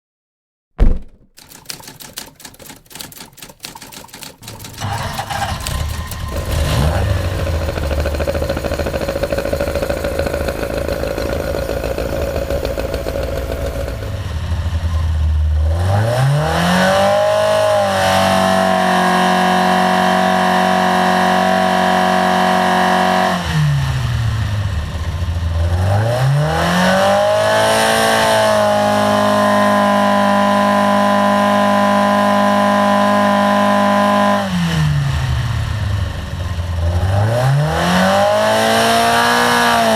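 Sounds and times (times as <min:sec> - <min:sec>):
race engine revving: 0:04.4 - 0:11.0.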